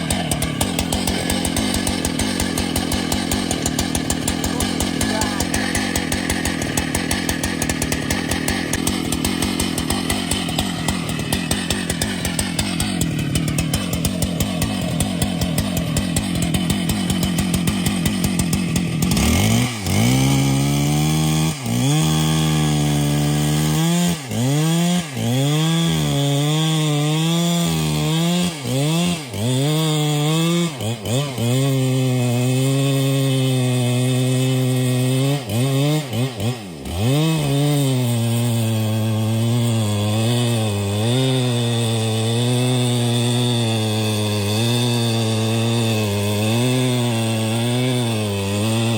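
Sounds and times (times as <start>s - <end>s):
chainsaw cutting: 0.0s - 48.9s.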